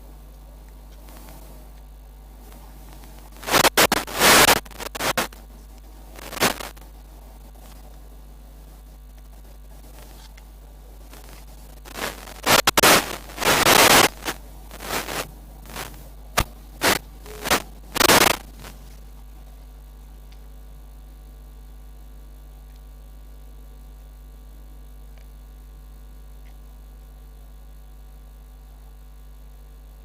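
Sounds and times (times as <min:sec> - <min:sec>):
steady hiss: 0:00.0 - 0:20.4
low mains hum: 0:00.0 - 0:30.0
microphone handling crackles: 0:02.4 - 0:08.1, 0:08.7 - 0:19.1.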